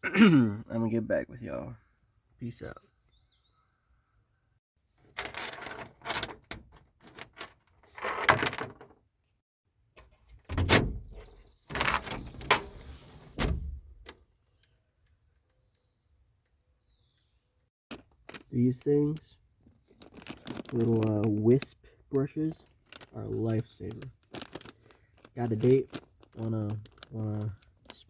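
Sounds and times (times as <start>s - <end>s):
handling clunks clicks and rustles: 5.0s - 9.1s, 10.0s - 14.2s, 17.9s - 28.0s.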